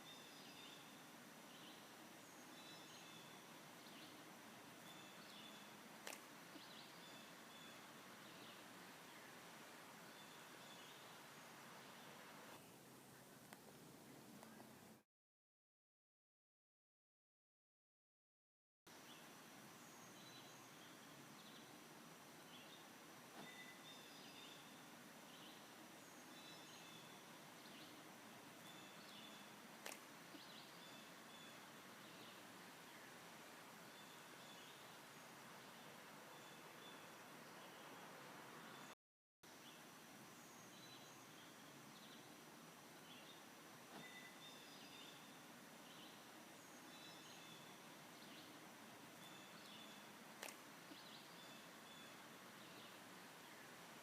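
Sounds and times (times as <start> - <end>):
songbird chirps: 0.0 - 15.0, 18.9 - 54.0
steady outdoor hiss: 0.0 - 15.0, 18.9 - 54.0
sharp click: 29.8 - 30.1, 50.4 - 50.6.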